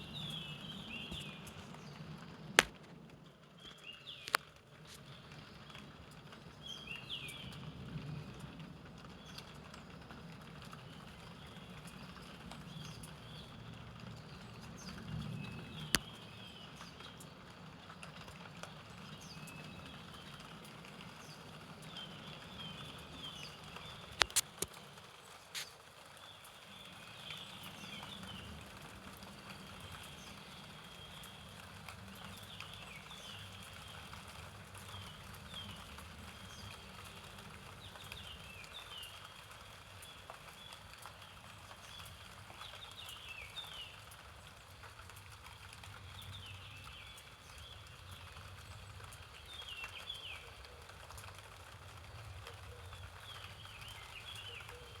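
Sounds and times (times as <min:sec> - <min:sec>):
songbirds chirping: 0:00.0 - 0:02.8, 0:03.4 - 0:55.0
light rain: 0:00.0 - 0:55.0
sharp taps: 0:02.6 - 0:02.9.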